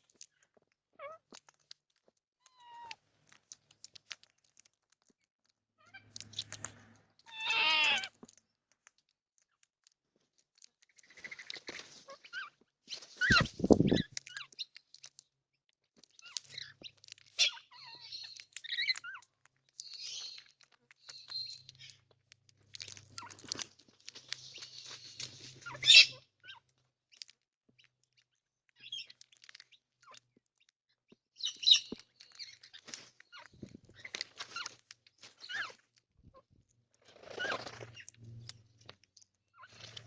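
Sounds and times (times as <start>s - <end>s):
birds screeching and chattering: 5.8s - 8.1s, 11.0s - 14.7s, 16.2s - 22.0s, 22.8s - 26.2s, 31.4s - 34.8s, 37.1s - 38.7s, 39.6s - 40.0s.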